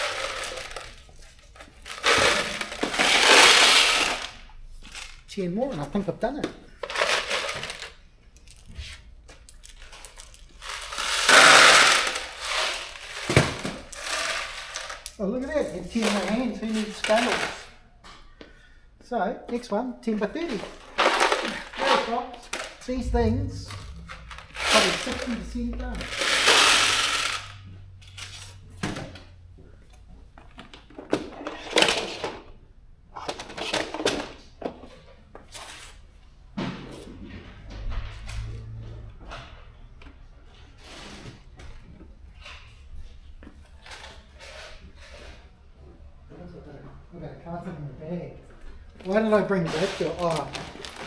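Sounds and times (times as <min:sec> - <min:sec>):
sharp knock: 0:23.0 - 0:27.0.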